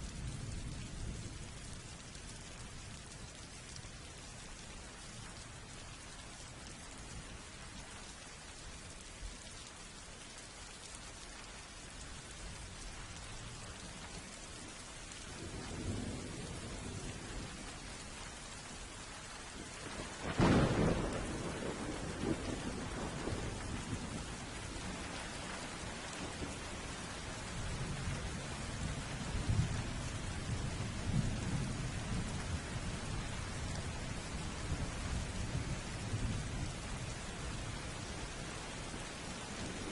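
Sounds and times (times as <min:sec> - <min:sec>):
steady rain: 0:00.0 - 0:39.9
thunder rumbling: 0:19.8 - 0:26.8
sharp thunderclap: 0:20.2 - 0:23.6.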